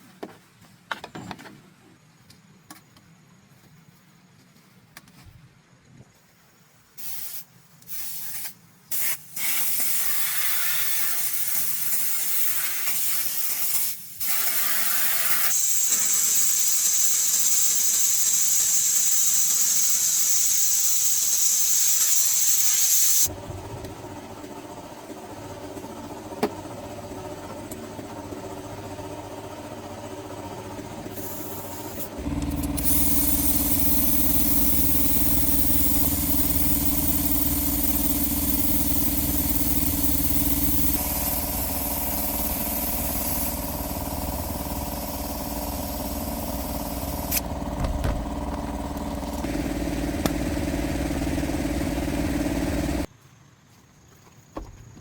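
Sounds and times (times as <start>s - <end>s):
strong hiss: 7.0s - 23.3s, 31.2s - 48.2s
engine running: 23.2s - 53.1s.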